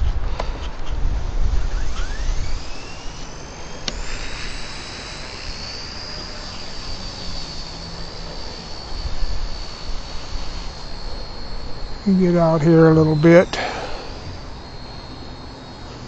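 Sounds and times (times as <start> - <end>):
wind buffeting microphone: 0.0 - 2.8
toy helicopter rotor whine: 0.0 - 16.0
sharp click: 3.8 - 4.0.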